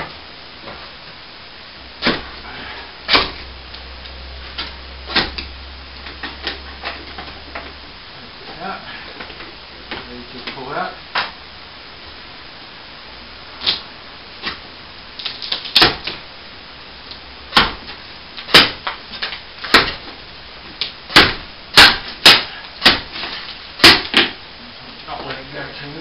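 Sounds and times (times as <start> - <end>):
air vent knocking loose from ceiling: 4.5 - 7.8.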